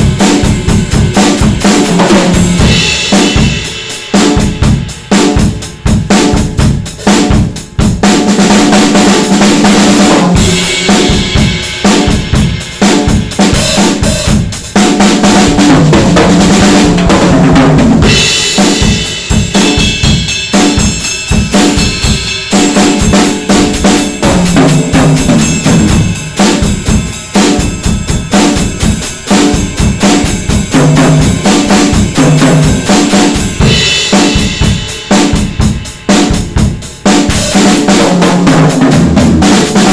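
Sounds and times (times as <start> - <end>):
drum kit groove: 0.0 - 39.9
cymbal wash: 10.3 - 15.6, 18.0 - 36.4.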